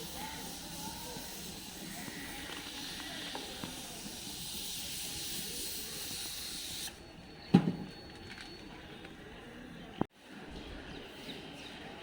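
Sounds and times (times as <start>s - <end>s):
steady hiss: 0.0s - 7.0s.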